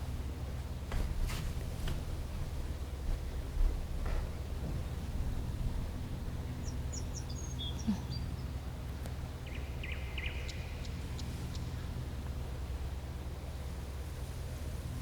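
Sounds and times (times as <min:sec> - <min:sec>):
low outdoor rumble: 0:00.0 - 0:15.0
small birds chirping: 0:06.6 - 0:08.6, 0:09.4 - 0:11.9.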